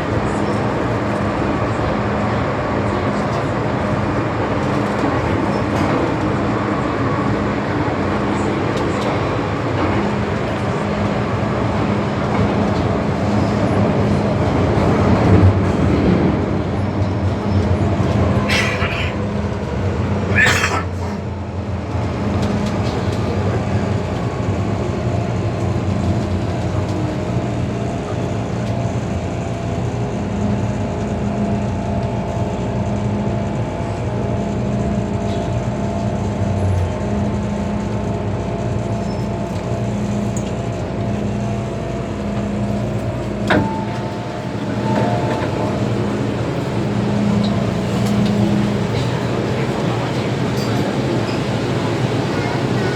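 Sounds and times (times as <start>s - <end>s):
train running rumble: 0.0s - 52.9s.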